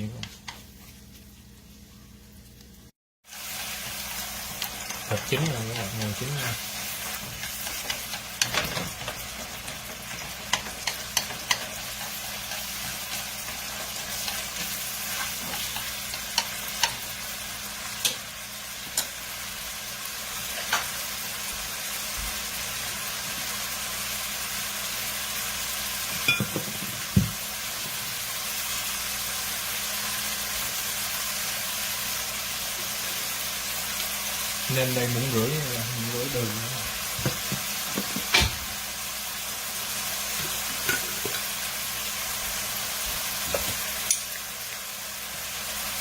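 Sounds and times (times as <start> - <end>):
meat sizzling in a pan: 3.2 - 46.0
metal utensil clicking on pan: 10.4 - 11.8, 18.0 - 18.2, 44.0 - 44.4.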